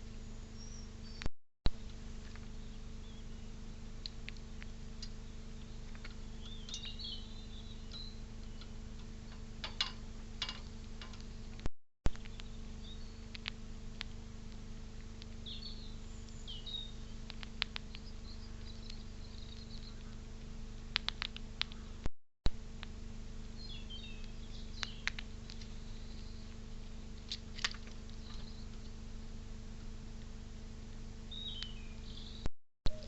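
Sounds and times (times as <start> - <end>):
small birds chirping: 0.0 - 9.6, 10.6 - 22.1, 23.4 - 29.0, 31.2 - 33.0
steady electrical hum: 0.0 - 33.0
sharp clicks: 13.3 - 15.4, 17.2 - 20.3, 20.9 - 21.8, 24.2 - 25.7.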